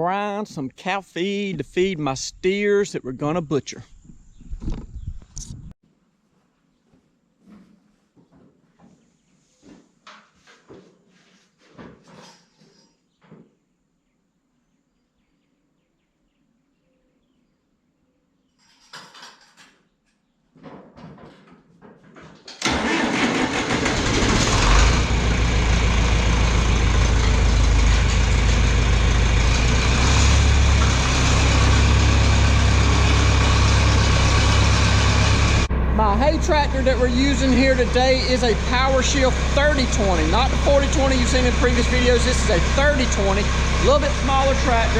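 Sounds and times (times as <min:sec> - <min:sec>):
tractor engine running: 0:22.6 - 0:44.9.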